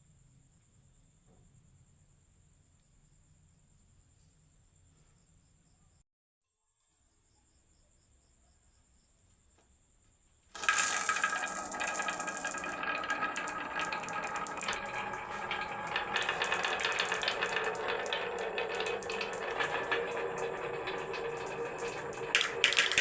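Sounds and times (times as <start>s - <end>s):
marbles clattering down wooden track: 10.6s - 23.0s.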